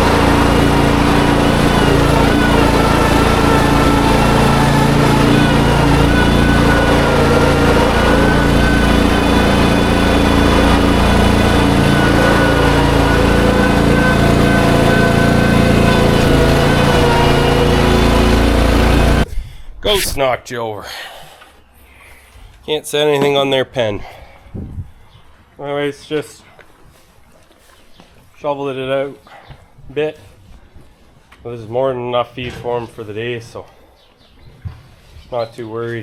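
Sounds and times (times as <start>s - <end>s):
farm machinery engine running: 0.0s - 19.3s.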